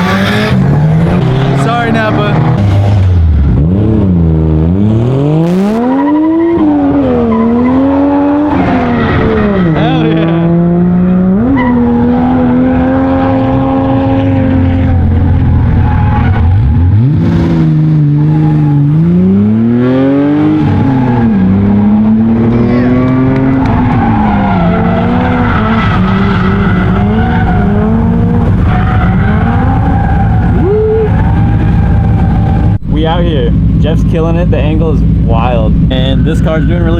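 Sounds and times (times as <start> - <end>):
car engine at high revs: 0.0 - 36.9
tire squeal: 5.6 - 10.6, 11.4 - 19.3, 20.5 - 21.9, 22.5 - 32.8, 35.9 - 36.9.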